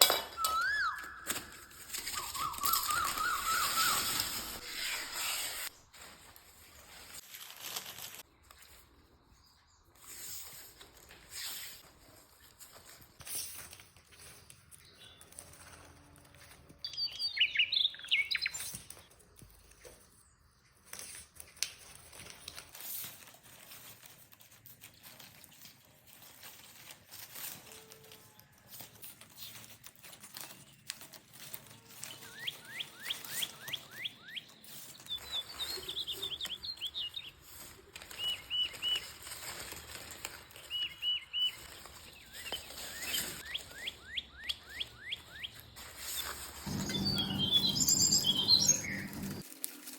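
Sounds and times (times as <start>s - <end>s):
small birds chirping: 0.4s - 4.6s, 16.8s - 19.0s, 32.2s - 39.1s, 40.6s - 49.4s.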